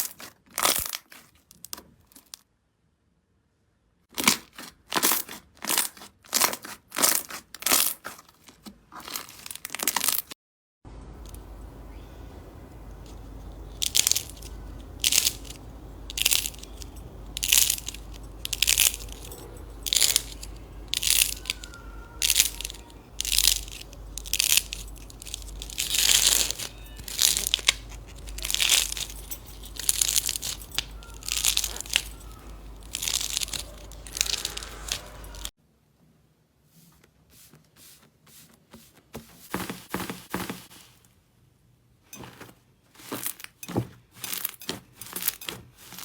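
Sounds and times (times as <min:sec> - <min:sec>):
slime squeezed crackling: 0:12.9 - 0:35.5.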